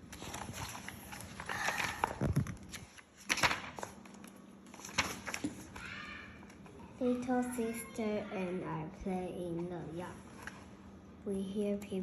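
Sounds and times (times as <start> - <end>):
book page turning: 0.0 - 6.7
rustling of handling: 0.0 - 7.0.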